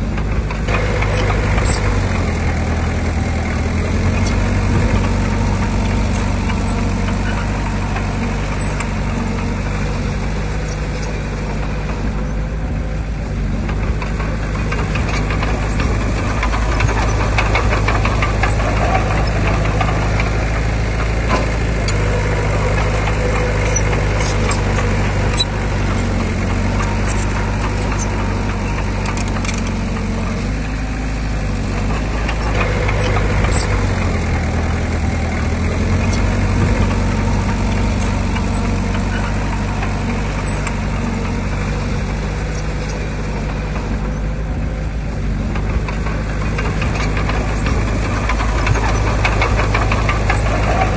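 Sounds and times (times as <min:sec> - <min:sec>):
heavy machinery diesel engine: 0:00.0 - 0:50.9
metallic clanks and rattles: 0:13.7 - 0:44.3, 0:45.6 - 0:50.9.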